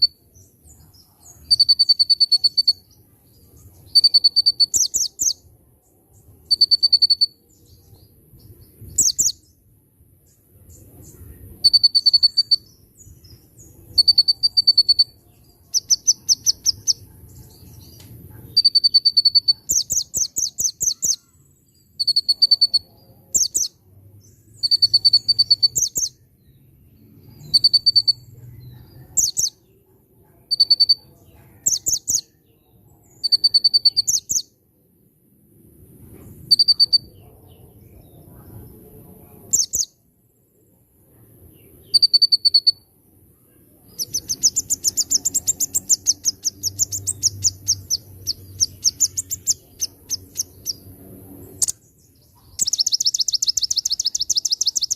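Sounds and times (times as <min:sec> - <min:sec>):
bird singing trills: 0:00.0 - 0:09.6, 0:10.2 - 0:29.8, 0:30.4 - 0:34.6, 0:36.5 - 0:38.8, 0:39.5 - 0:40.0, 0:41.5 - 0:42.9, 0:43.5 - 0:54.9.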